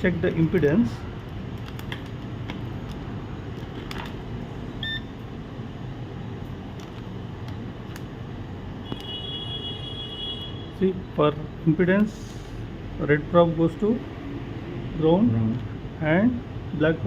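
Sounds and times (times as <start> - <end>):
short electronic beep: 4.8 - 5.1.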